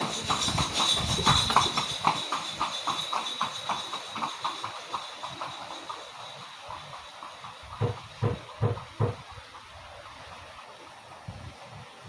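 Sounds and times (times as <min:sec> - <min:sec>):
wind buffeting microphone: 0:00.0 - 0:02.1, 0:07.7 - 0:12.0
thin steady high tone: 0:00.0 - 0:09.2
rapid clip-clop knocks: 0:00.0 - 0:12.0.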